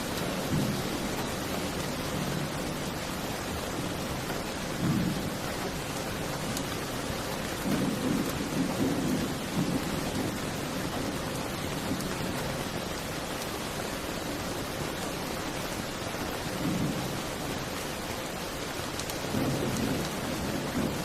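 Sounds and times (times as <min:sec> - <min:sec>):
steady rain: 0:00.0 - 0:21.0
low rumbles of thunder: 0:00.1 - 0:12.8, 0:16.4 - 0:17.5, 0:19.1 - 0:21.0.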